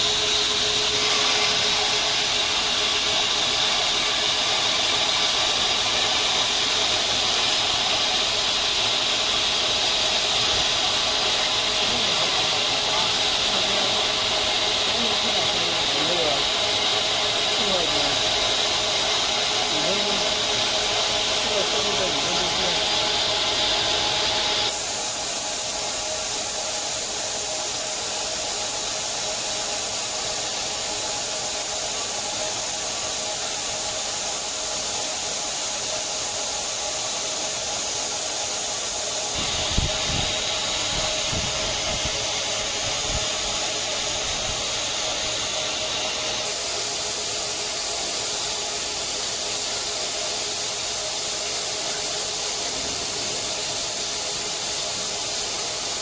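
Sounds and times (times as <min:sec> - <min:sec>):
band saw cutting steel: 0:00.0 - 0:24.8, 0:39.1 - 0:48.4.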